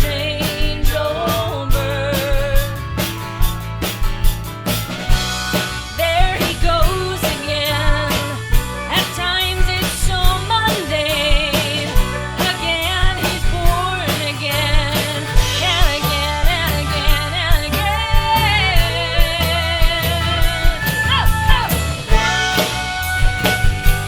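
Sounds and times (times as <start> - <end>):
woman singing: 0.0 - 3.0, 5.9 - 23.7
acoustic guitar: 0.0 - 24.0
bass: 0.0 - 24.0
drums: 0.0 - 24.0
pedal steel guitar: 0.0 - 24.0
fiddle: 15.4 - 24.0.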